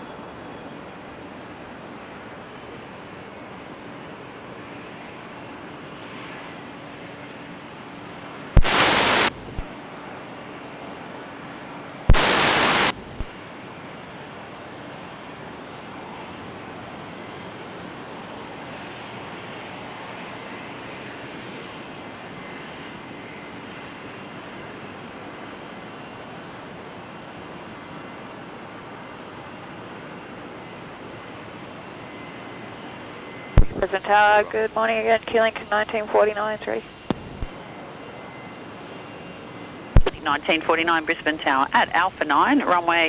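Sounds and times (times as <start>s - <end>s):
distant jet engines rushing: 8.6s - 9.7s, 12.1s - 13.3s, 33.6s - 37.5s
faint high whine: 8.6s - 9.7s, 12.1s - 13.3s, 31.8s - 43.0s.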